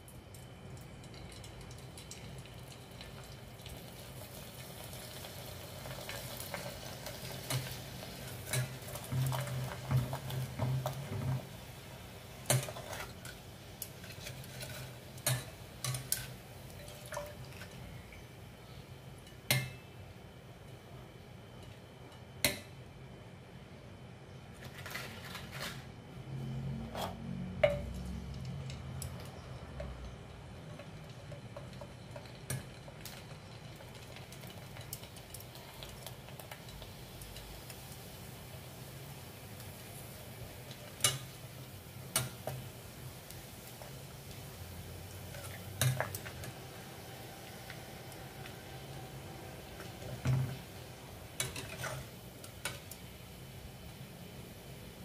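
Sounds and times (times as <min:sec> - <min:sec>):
metal tongs clinking on pot: 0:07.3 - 0:09.5, 0:12.5 - 0:17.8, 0:40.7 - 0:41.4, 0:45.3 - 0:46.6, 0:51.4 - 0:53.0.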